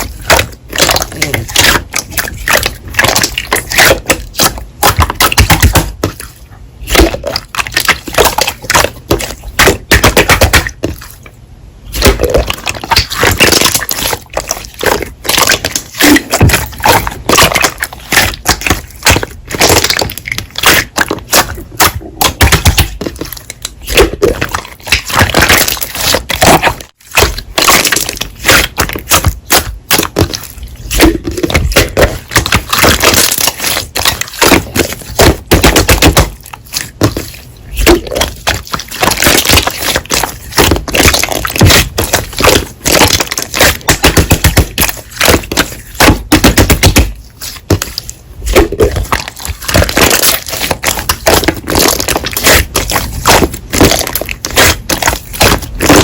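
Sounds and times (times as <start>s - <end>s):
slime squeezed crackling and popping: 11.9s - 56.0s.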